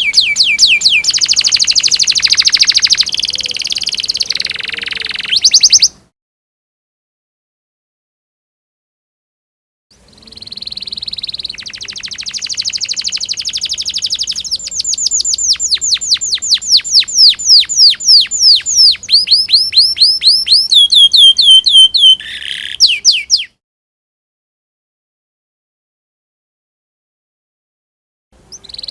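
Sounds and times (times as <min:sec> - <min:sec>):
canary singing trills: 0:00.0 - 0:06.0, 0:10.0 - 0:23.6, 0:28.4 - 0:28.9.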